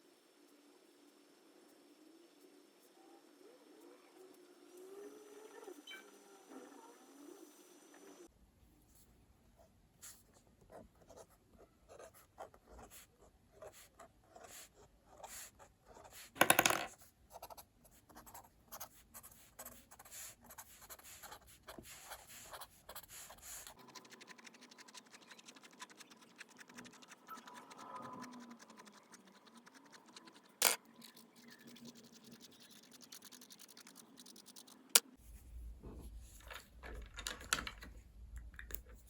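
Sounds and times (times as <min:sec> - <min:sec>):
pen scratching on paper: 0:17.3 - 0:34.8.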